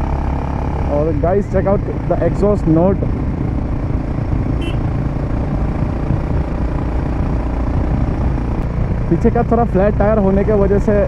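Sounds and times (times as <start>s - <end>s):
motorcycle engine exhaust note: 3.2s - 9.0s.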